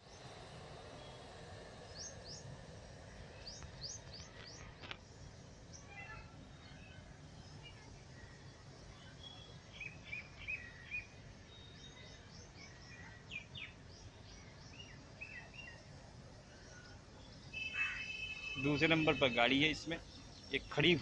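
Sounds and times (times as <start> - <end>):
faint outdoor background noise: 0.0 - 21.0
small birds chirping: 0.0 - 21.0.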